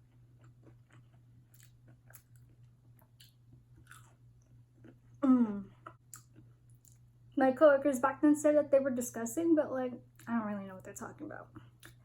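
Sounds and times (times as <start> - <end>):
person chewing crunchy food: 0.0 - 7.0.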